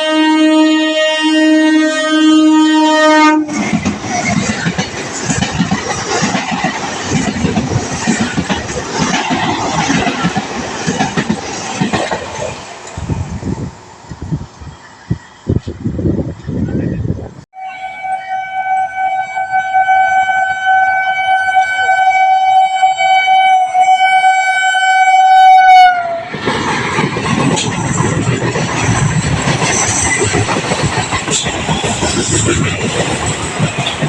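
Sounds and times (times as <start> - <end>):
train horn blast: 0.0 - 3.7, 17.6 - 26.3
train rumbling past: 0.0 - 34.0.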